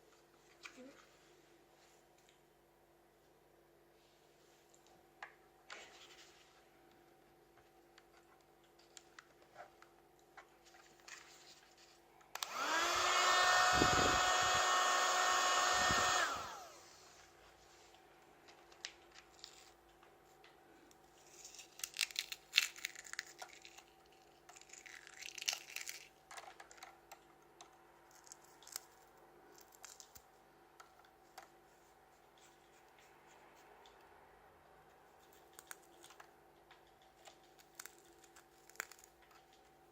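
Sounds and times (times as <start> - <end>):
small vacuum motor whining: 12.3 - 17.1.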